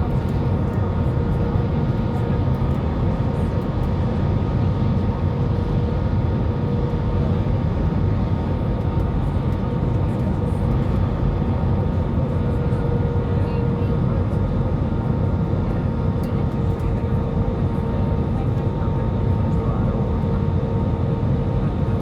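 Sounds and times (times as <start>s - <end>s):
aircraft cabin engine rumble: 0.0s - 22.0s.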